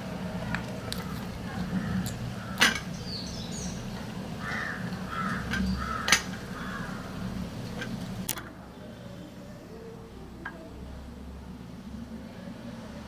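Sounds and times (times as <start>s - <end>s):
crow-like caws: 1.7s - 2.8s, 4.4s - 7.2s.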